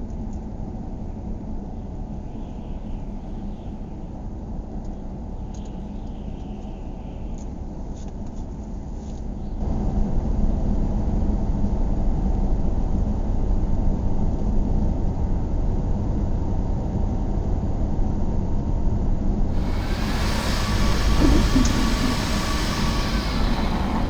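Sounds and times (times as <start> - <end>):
vehicle rumbling: 19.5 - 24.0.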